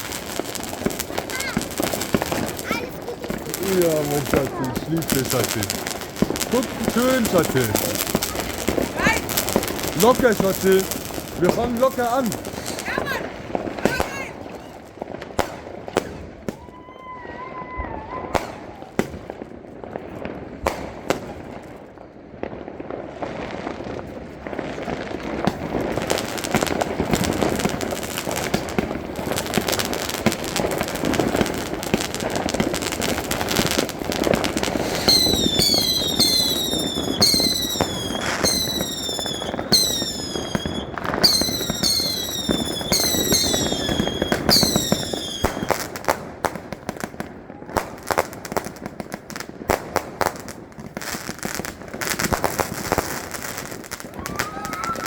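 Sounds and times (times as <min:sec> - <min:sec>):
firework pops and crackle: 0:00.0 - 0:17.2, 0:18.1 - 0:55.0
falling firework whistles: 0:15.9 - 0:19.3, 0:25.5 - 0:46.0, 0:50.4 - 0:55.0.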